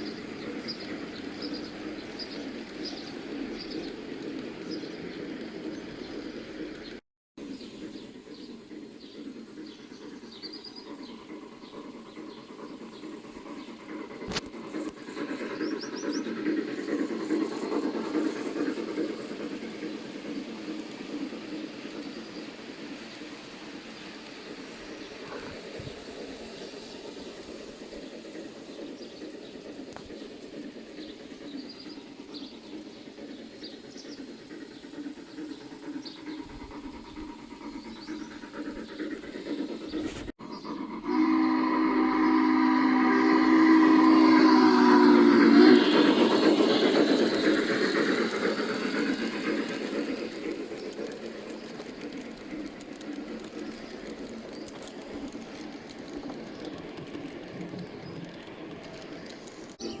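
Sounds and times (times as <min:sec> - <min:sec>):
wheels clicking and rumbling on track: 0:00.0 - 0:41.2, 0:43.6 - 1:00.0
model train horn chord: 0:41.2 - 0:45.4, 0:59.8 - 1:00.0.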